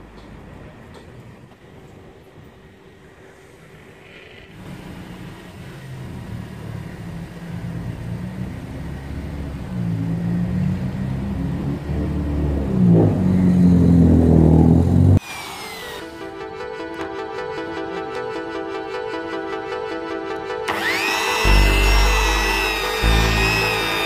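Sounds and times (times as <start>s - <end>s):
car engine revving: 4.5s - 15.2s, 20.7s - 24.0s
background music: 15.8s - 24.0s.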